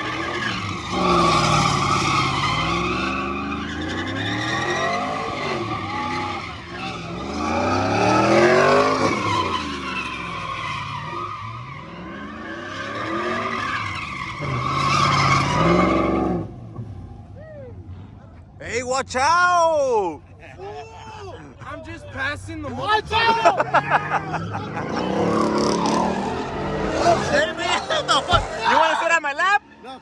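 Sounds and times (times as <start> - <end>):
tyres squealing: 0.0 - 16.4, 20.5 - 30.0
truck engine revving: 0.0 - 17.2, 22.4 - 28.9.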